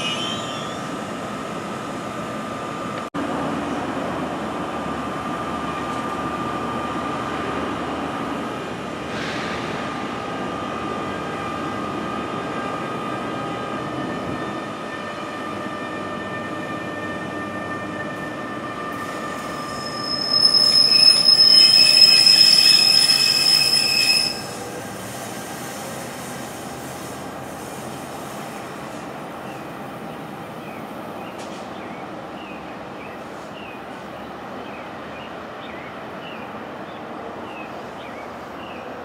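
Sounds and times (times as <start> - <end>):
shrill wheel squeal: 0.0 - 1.2, 16.9 - 25.9
steady high tones: 0.0 - 1.8
electric train rumbling: 0.0 - 39.0.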